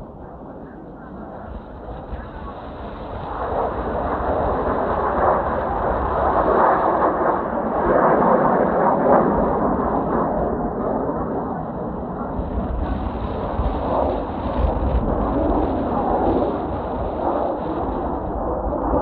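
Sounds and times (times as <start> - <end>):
jet roar passing overhead: 0.0 - 19.0
wind buffeting microphone: 0.0 - 19.0.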